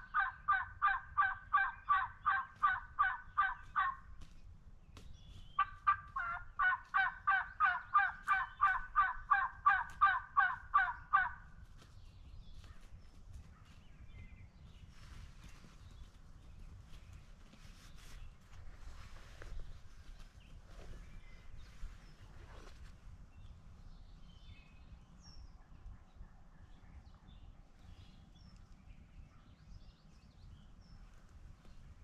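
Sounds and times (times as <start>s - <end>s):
turkey yelping: 0.0s - 4.0s, 5.6s - 11.4s
faint ticks and rustling: 11.6s - 23.0s, 27.7s - 28.9s.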